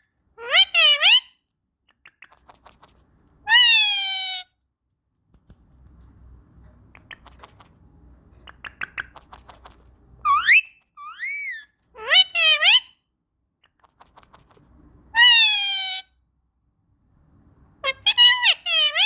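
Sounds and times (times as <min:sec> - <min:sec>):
parakeet calling: 0:00.4 - 0:01.3, 0:08.5 - 0:13.0, 0:15.2 - 0:16.1, 0:17.8 - 0:19.0.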